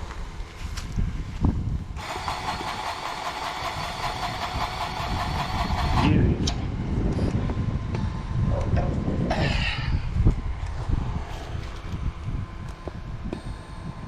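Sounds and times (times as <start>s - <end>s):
grease gun motor whining: 2.0s - 6.1s
low rumble: 5.2s - 14.0s.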